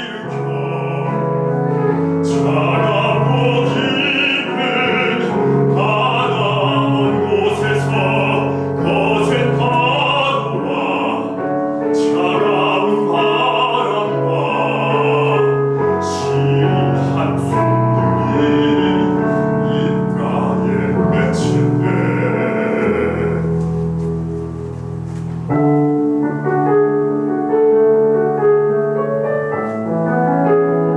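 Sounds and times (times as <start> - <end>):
operatic singing: 0.0 - 23.9
piano accompaniment: 0.0 - 30.9.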